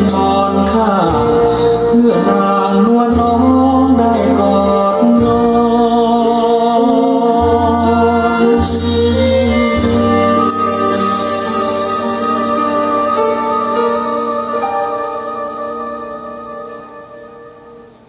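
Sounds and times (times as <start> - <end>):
love song through speaker: 0.0 - 18.0.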